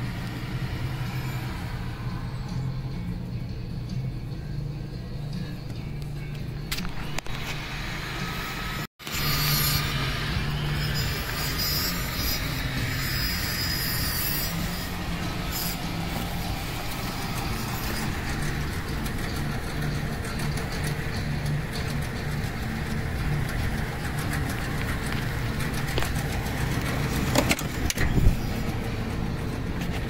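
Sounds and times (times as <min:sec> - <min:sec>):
car engine idling: 0:16.0 - 0:30.0.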